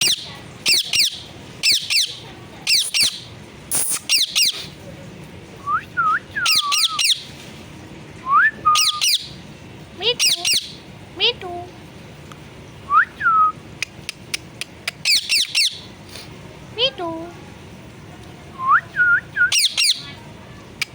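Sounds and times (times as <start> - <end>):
parrot squawking: 0.0 - 4.7, 6.4 - 7.3, 8.8 - 9.4, 10.0 - 10.8, 15.0 - 15.9, 19.5 - 20.2.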